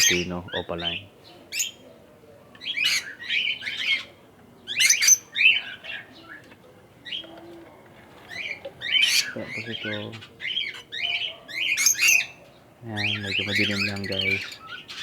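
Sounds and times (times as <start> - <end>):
parrots chirping and squawking: 0.0 - 1.8, 2.6 - 4.1, 4.7 - 6.4, 8.3 - 15.0.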